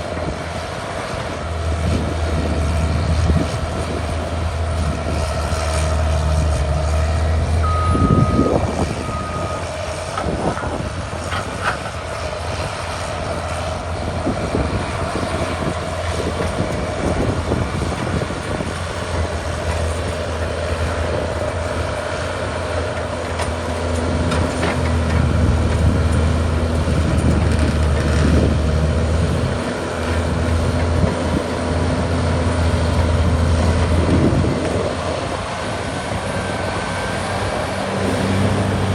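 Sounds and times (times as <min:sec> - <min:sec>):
bulldozer diesel engine running: 0:00.0 - 0:38.9
backup alarm beeps: 0:07.6 - 0:09.6.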